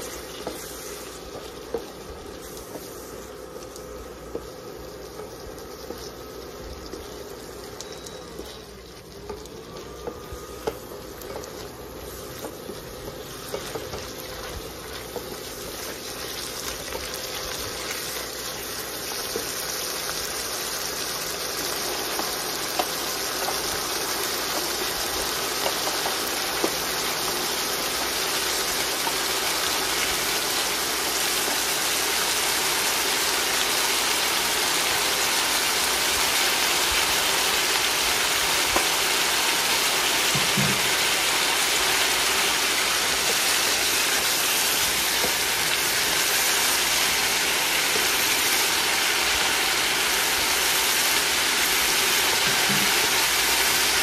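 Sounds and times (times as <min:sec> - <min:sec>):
food sizzling in a wok: 0:00.0 - 0:54.0.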